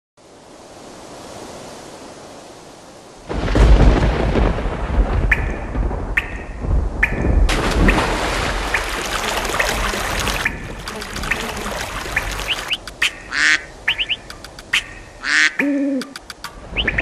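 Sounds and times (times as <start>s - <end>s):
water rushing: 0.2s - 17.0s
birds chirping: 5.3s - 17.0s.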